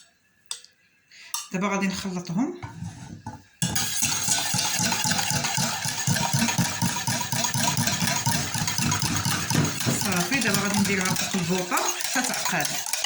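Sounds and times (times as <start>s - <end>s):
electric hand mixer running: 3.8s - 13.0s.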